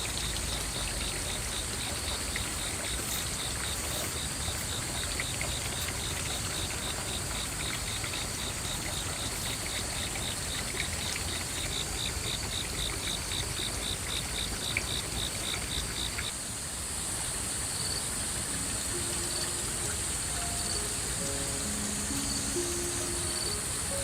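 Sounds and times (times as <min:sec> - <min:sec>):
rhythmic cricket chirping: 0:00.0 - 0:16.3, 0:17.8 - 0:24.0
high insect hum: 0:00.0 - 0:24.0
faint musical notes: 0:18.2 - 0:24.0.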